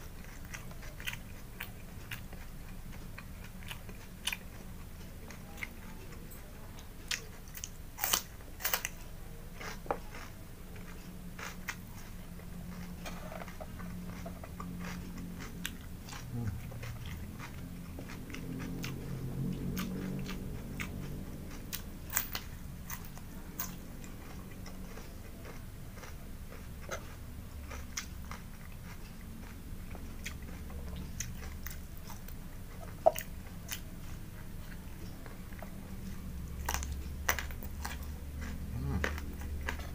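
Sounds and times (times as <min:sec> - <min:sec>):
crunching raw vegetables: 0:09.6 - 0:39.9.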